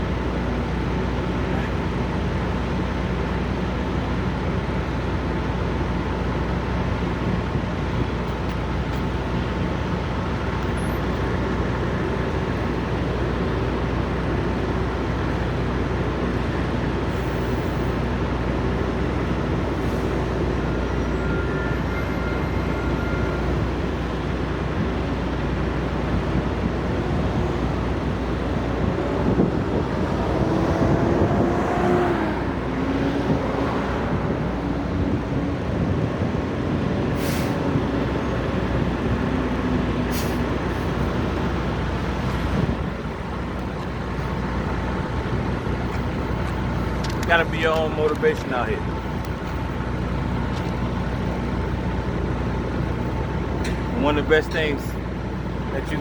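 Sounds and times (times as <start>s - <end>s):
truck engines idling: 0.0s - 31.5s, 32.1s - 56.0s
vehicle speeding up: 26.6s - 37.0s.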